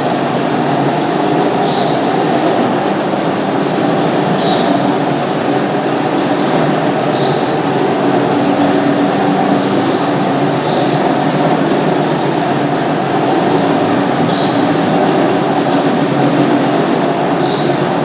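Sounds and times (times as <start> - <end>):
floor polisher motor hum: 0.0 - 18.0
high squeak: 13.3 - 15.0.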